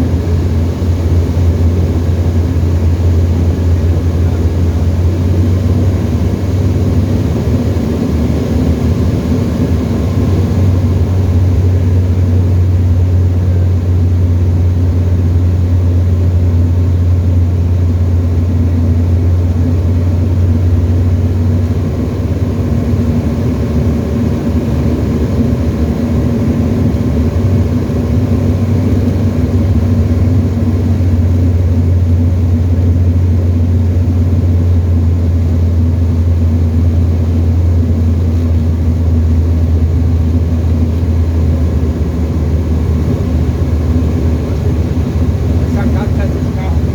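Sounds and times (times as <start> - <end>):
light aircraft engine drone: 0.0 - 46.9.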